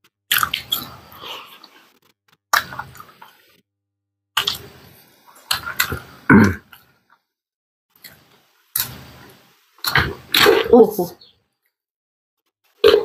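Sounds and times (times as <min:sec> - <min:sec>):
chewing and mouth smacking: 0:00.3 - 0:03.4.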